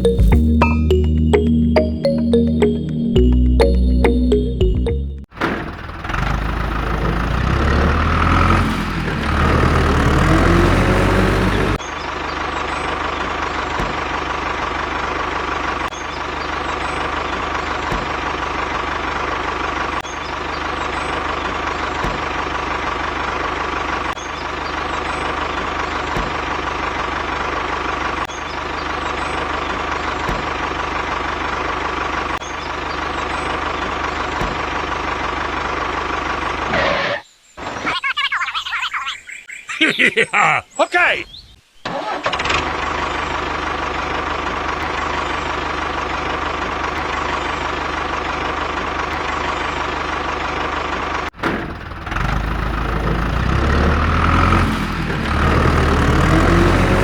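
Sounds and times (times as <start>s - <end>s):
engine running steadily: 42.7s - 53.5s.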